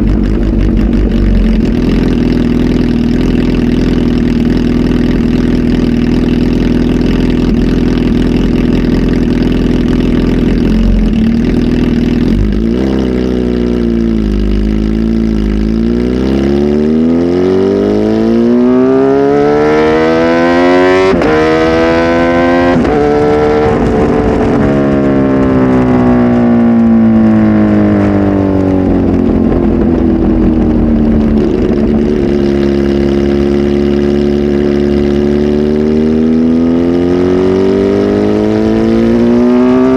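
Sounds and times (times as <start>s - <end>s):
exhaust crack: 0.0s - 17.0s, 21.1s - 35.5s
motorcycle engine revving: 0.0s - 39.9s.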